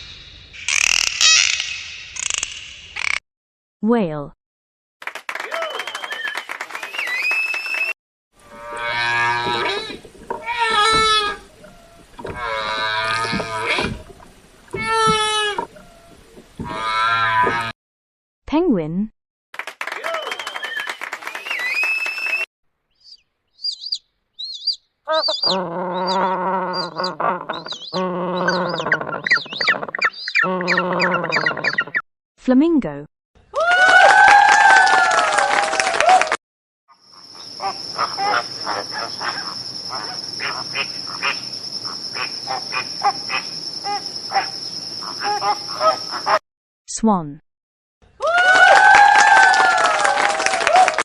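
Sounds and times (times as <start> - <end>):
flamingos honking: 8.5 - 14.1, 14.9 - 17.7, 25.1 - 31.8, 37.1 - 46.4
penguins chirping: 23.0 - 32.0
penguin long low calls: 25.1 - 31.8.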